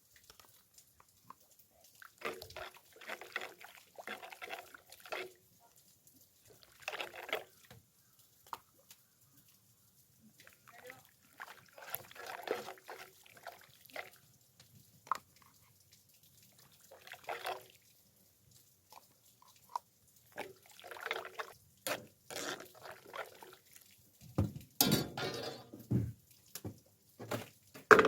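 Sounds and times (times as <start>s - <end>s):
bubbling sauce: 0.0s - 28.0s
utensil clinking on metal lid: 24.4s - 26.0s.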